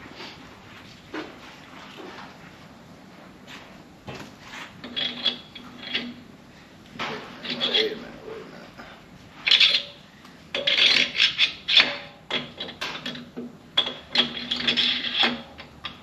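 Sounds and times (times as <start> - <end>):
metal scraping and clinking: 4.7 - 6.3, 7.0 - 8.8, 9.4 - 16.0.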